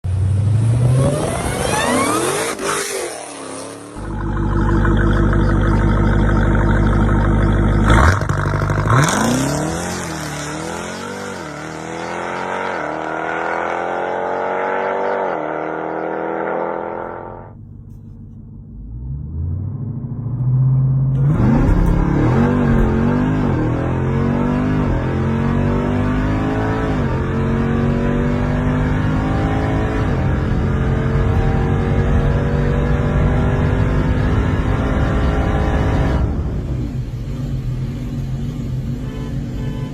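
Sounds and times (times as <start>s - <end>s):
engine revving and accelerating hard: 0.3s - 4.1s, 7.8s - 17.5s, 21.1s - 36.6s.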